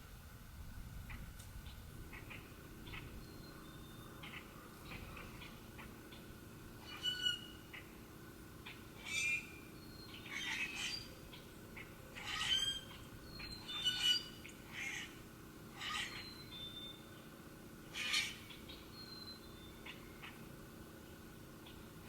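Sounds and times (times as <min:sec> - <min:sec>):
faint bird chirps: 0:01.7 - 0:07.9, 0:15.8 - 0:21.9
harsh bird calls: 0:02.1 - 0:08.0, 0:08.6 - 0:17.1, 0:17.8 - 0:20.5.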